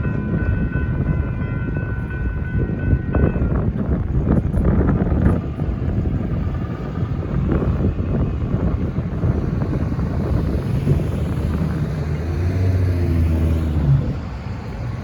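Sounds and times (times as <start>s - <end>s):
freight train rumbling past: 0.0s - 15.0s
wind buffeting microphone: 0.0s - 15.0s
engine hum: 5.0s - 15.0s.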